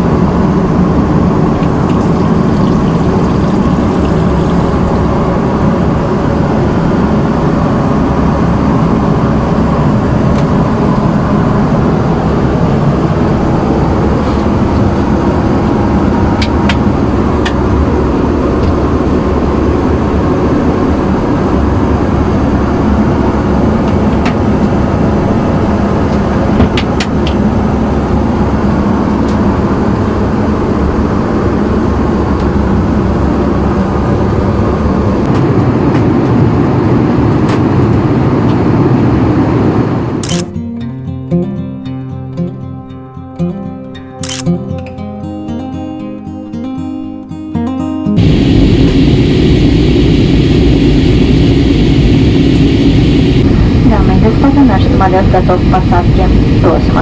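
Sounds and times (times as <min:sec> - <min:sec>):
airplane cabin engine roar: 0:00.0 - 0:40.6, 0:48.2 - 0:57.0
short clicks: 0:40.2 - 0:40.5.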